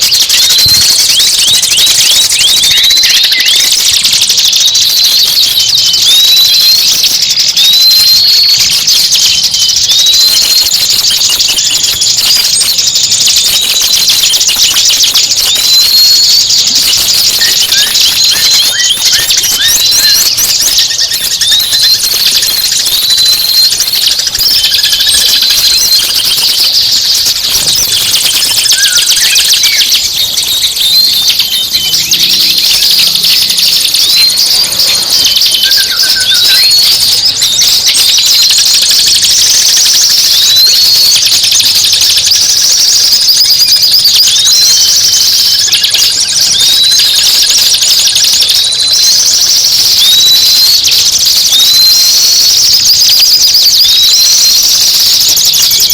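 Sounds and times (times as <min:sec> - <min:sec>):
songbird chattering song: 0:00.0 - 0:55.9
rising whistled bird note: 0:00.2 - 0:38.6.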